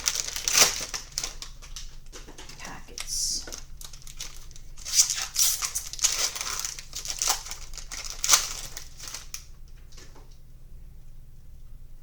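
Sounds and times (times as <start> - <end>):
foil pack tearing and crinkling: 0.0 - 2.4, 3.0 - 9.5.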